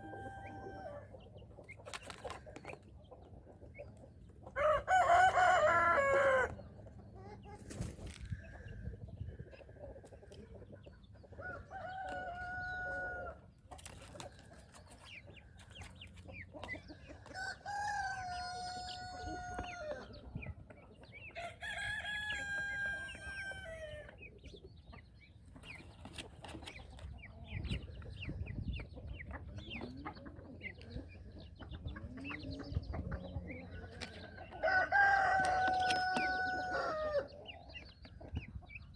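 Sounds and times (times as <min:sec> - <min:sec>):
fowl clucking and chirping: 0:00.0 - 0:38.9
rooster crowing: 0:04.6 - 0:06.5, 0:34.6 - 0:37.3.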